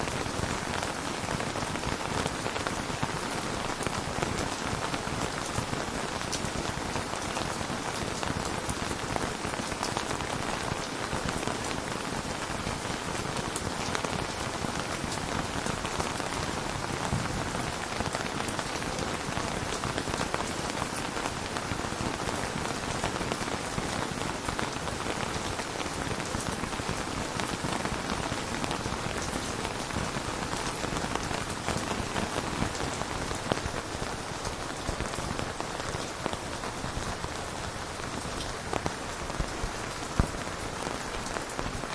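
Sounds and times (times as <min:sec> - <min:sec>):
rain pattering: 0:00.0 - 0:41.9.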